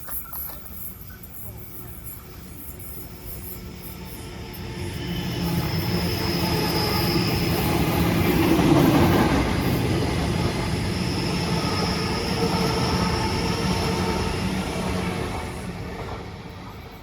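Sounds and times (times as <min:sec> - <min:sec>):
high wheel squeal: 0:00.0 - 0:10.0
electric train passing: 0:00.7 - 0:17.0.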